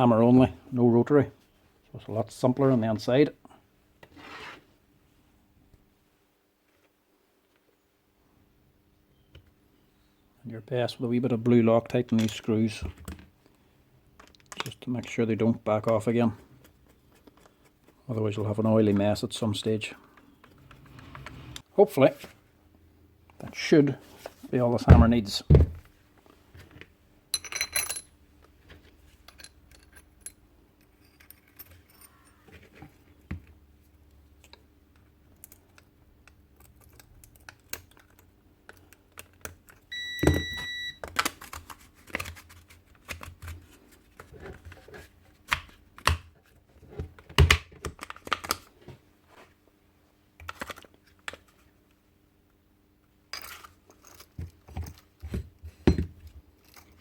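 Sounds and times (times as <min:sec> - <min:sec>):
brief steady tone: 0:39.9 - 0:41.0.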